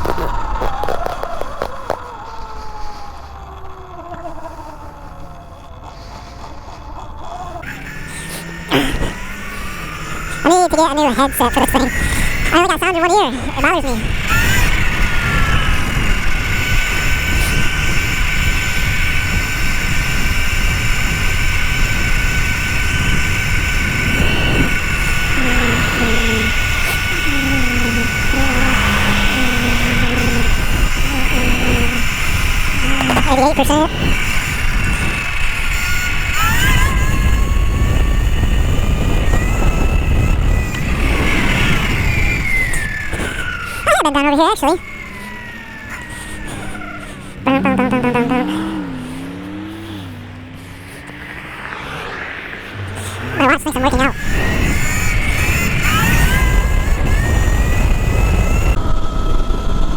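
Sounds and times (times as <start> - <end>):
electric motorbike motor whine: 0.0 - 10.4, 11.9 - 12.5, 13.5 - 43.9, 44.8 - 53.4, 54.1 - 59.9
wind rumble on microphone: 33.9 - 43.7, 54.1 - 59.9.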